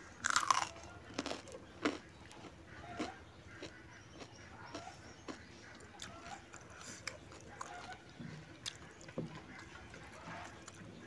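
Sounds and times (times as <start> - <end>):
person chewing food: 0.2 - 8.0, 8.6 - 9.2.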